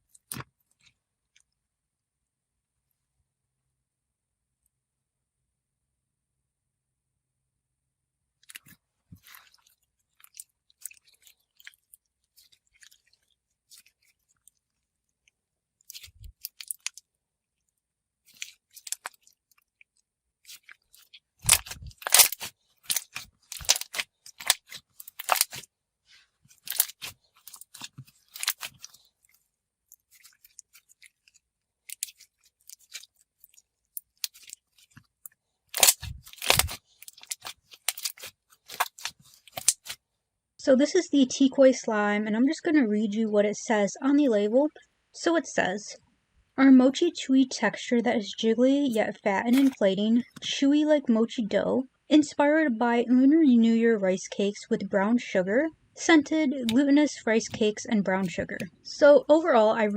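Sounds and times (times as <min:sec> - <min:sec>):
slime squeezed with wet crunches: 0:08.4 - 0:17.1, 0:18.2 - 0:40.0, 0:49.4 - 0:50.4.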